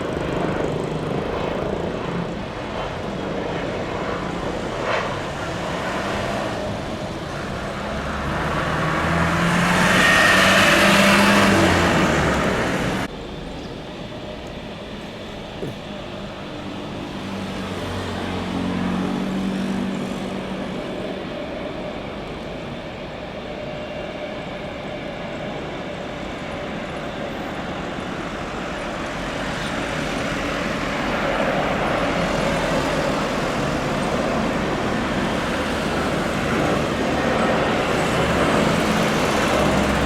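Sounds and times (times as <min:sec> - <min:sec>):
jet airliner approaching: 0:00.0 - 0:40.0
road traffic: 0:00.6 - 0:40.0
vehicle passing: 0:07.8 - 0:13.1.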